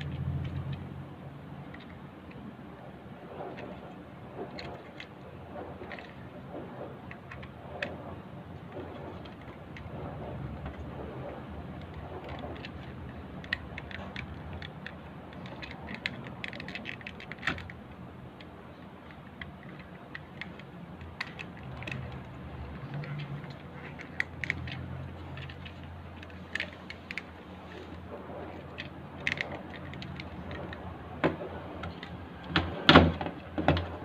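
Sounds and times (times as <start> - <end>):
steady low hum: 0.0 - 34.0
small clicks and light rattles: 8.8 - 31.0.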